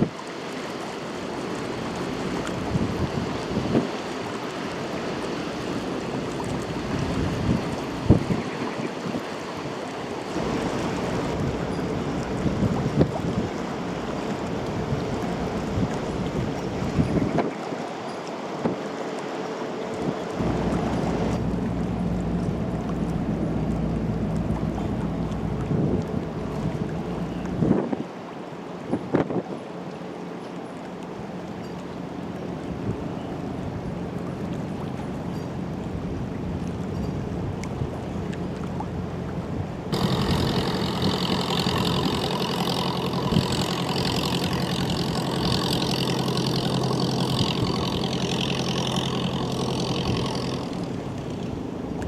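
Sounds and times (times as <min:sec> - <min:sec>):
ship engine drone: 0:00.0 - 0:28.9, 0:29.7 - 0:52.0
wind and water rushing: 0:00.0 - 0:52.0
wind gusting against microphone: 0:02.5 - 0:17.8, 0:39.4 - 0:52.0.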